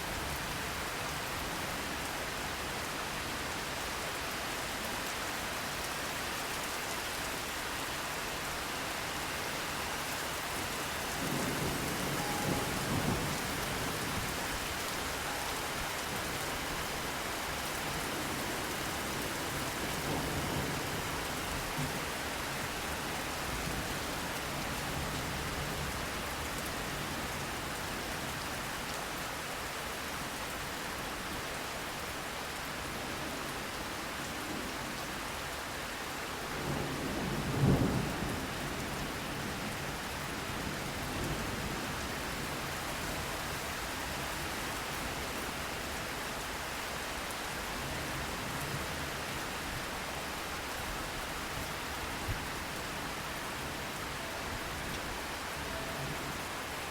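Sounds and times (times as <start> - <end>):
rain pattering: 0.0 - 56.9
distant thunder rumbling: 11.2 - 15.2.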